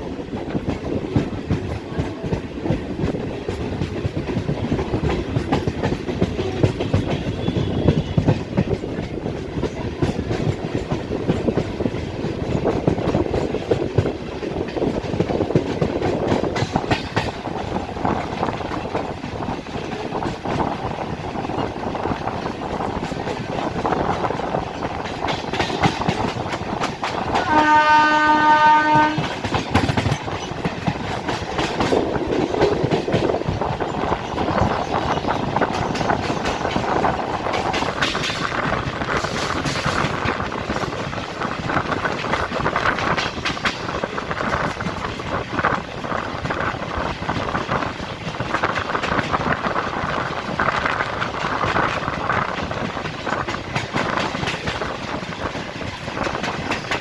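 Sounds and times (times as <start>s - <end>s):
train wheels clattering: 0.0s - 57.0s
train horn: 6.4s - 8.5s, 27.3s - 29.6s.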